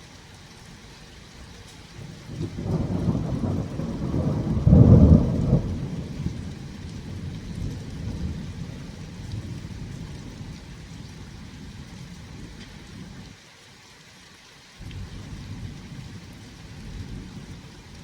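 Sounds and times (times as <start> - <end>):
steady rain: 0.0 - 18.0
thunder rumbling: 2.0 - 12.6.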